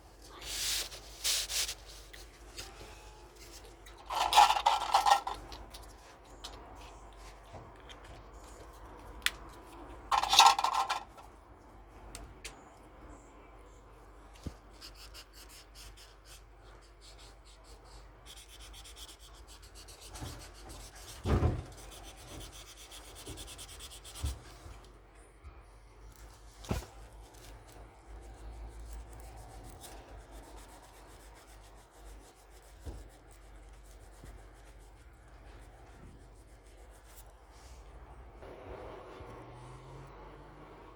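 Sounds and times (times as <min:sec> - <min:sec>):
paper rubbing and rustling: 0:00.3 - 0:02.6.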